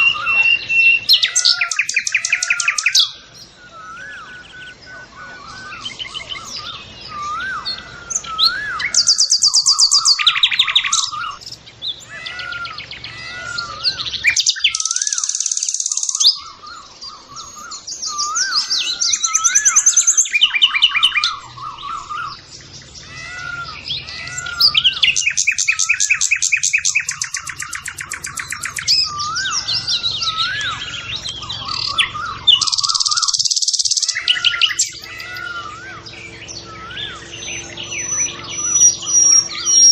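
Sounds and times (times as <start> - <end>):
high-pitched bird trills: 0.0 - 39.9.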